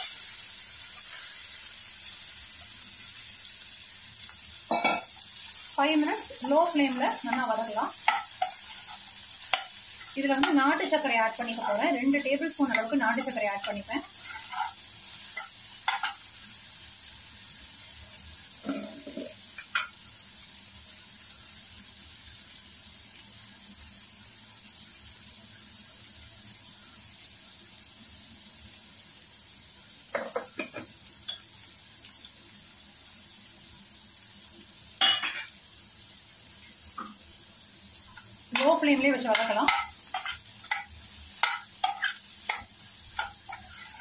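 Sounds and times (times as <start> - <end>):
vegetables sizzling in pan: 0.0 - 44.0
spoon clinking and scraping pan: 4.7 - 5.2, 6.4 - 11.6, 12.6 - 16.3, 18.6 - 19.9, 35.0 - 35.5, 38.5 - 44.0.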